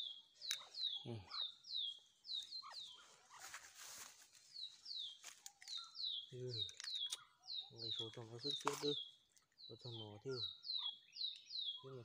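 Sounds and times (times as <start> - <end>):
bird falling chirp: 8.4 - 9.1.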